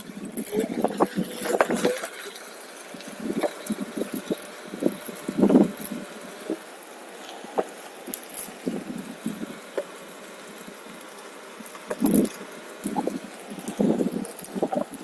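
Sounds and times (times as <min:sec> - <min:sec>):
wind noise on microphone: 0:00.0 - 0:02.2, 0:02.9 - 0:06.6, 0:07.5 - 0:09.6, 0:11.9 - 0:15.0.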